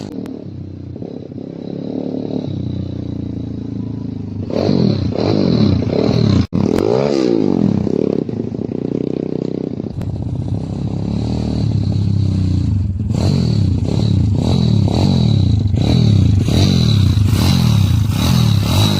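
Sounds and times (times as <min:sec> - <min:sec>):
motorbike engine revving: 0:00.0 - 0:18.9.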